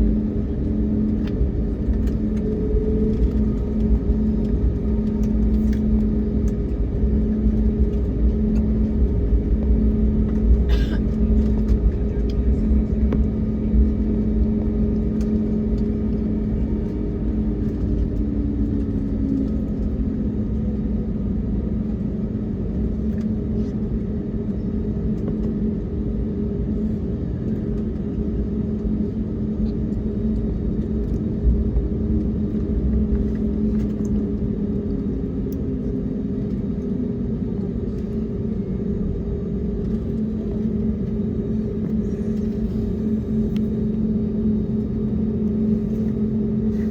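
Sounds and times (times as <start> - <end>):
aircraft cabin drone: 0.0 - 46.9
engine hum: 0.0 - 46.9.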